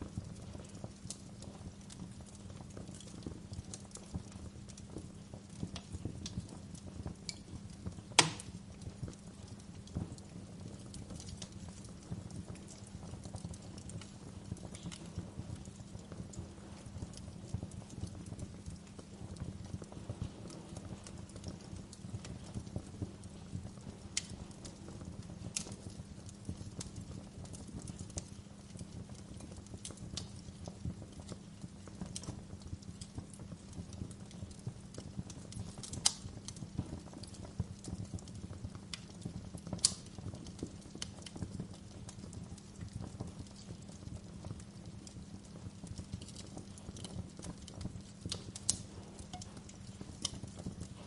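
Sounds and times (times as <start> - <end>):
wood fire crackling: 0.0 - 51.0
loud sharp pop: 8.2 - 8.5.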